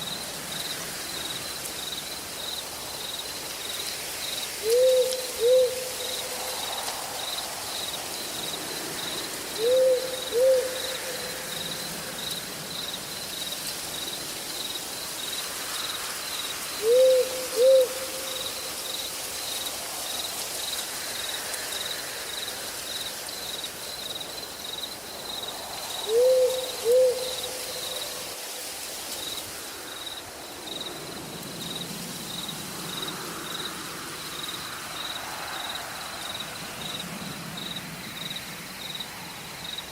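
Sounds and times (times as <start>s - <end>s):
soft hiss of night forest: 0.0s - 39.9s
owl hooting: 4.6s - 6.3s, 9.6s - 11.3s, 16.8s - 18.4s, 26.0s - 28.0s.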